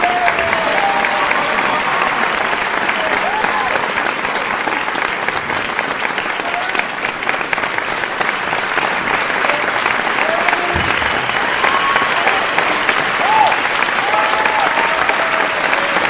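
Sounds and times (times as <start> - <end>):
large crowd applauding: 0.0 - 16.0.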